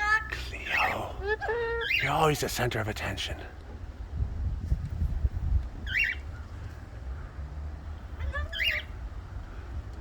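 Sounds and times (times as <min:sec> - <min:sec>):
parrot calls: 0:00.7 - 0:02.1, 0:05.8 - 0:06.3, 0:08.2 - 0:09.0
steady low rumble: 0:02.3 - 0:08.3.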